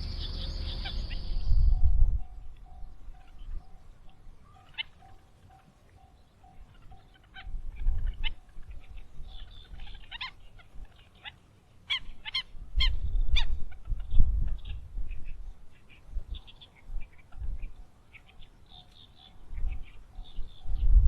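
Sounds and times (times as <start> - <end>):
low rumble: 0.0 - 3.6
fowl honking calls: 0.0 - 17.4.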